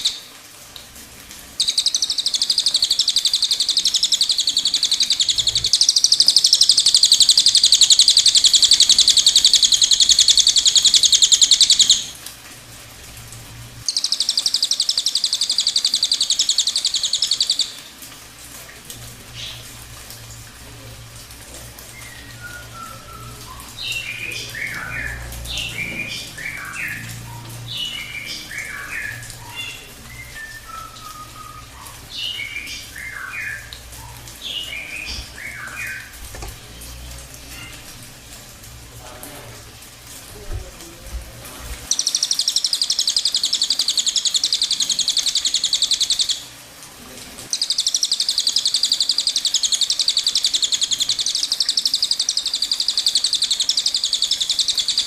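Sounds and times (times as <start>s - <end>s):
rapid high bird trill: 0.0s - 0.3s, 1.6s - 12.2s, 13.8s - 17.9s, 21.9s - 37.9s, 41.9s - 46.5s, 47.5s - 55.0s
songbird chirping phrases: 0.0s - 0.3s, 1.5s - 12.2s, 13.8s - 18.0s, 19.3s - 19.7s, 20.8s - 38.0s, 41.9s - 46.5s, 47.5s - 55.0s.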